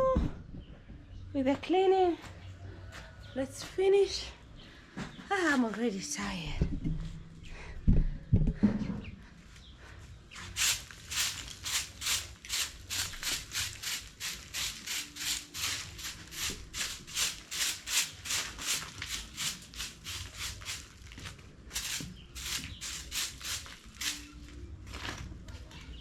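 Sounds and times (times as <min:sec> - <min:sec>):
rhythmic brushing strokes: 0:10.4 - 0:24.6.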